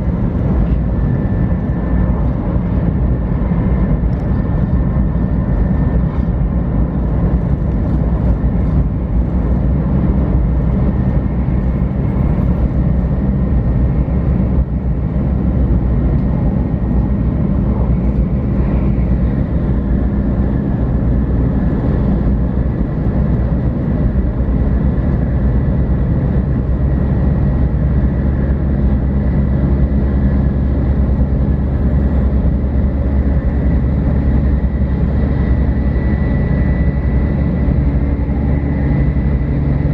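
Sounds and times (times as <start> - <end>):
train rumble: 0.0 - 39.9.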